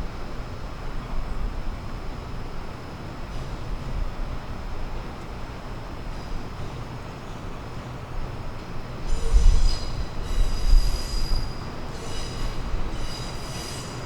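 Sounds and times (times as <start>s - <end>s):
low train rumble: 0.0s - 14.0s
train wheels squealing on rails: 9.0s - 14.0s.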